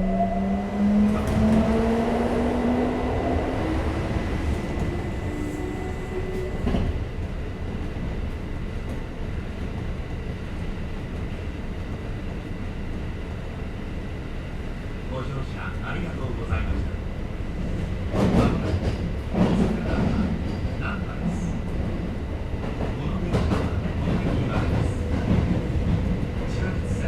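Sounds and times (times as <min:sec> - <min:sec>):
train wheels rumbling: 0:16.4 - 0:27.0.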